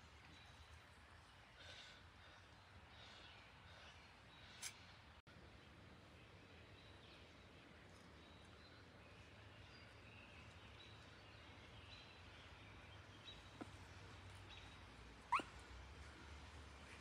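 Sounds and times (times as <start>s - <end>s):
faint bird calls: 14.5s - 15.6s.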